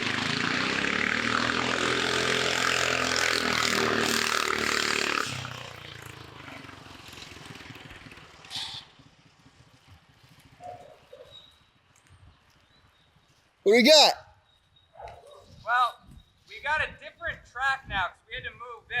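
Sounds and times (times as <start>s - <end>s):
go-kart engine running flat out: 0.0s - 10.6s.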